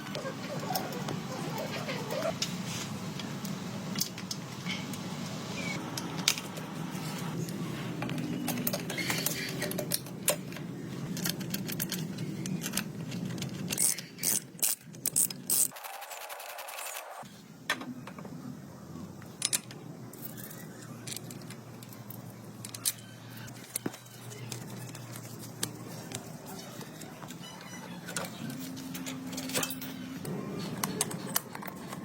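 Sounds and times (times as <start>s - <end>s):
small metal parts clacking: 8.1s - 17.0s, 19.4s - 32.0s.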